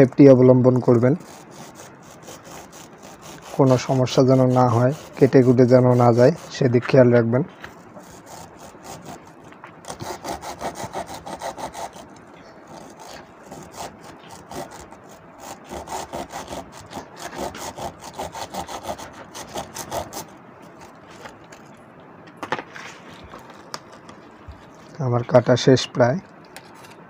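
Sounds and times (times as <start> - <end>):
hacksaw scraping through wires: 0.7 - 21.7.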